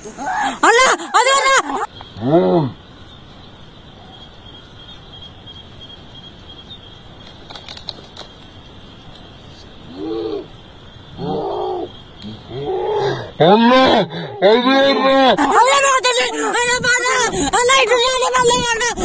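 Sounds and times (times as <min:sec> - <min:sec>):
moaning calls: 0:00.0 - 0:02.8, 0:09.8 - 0:19.0.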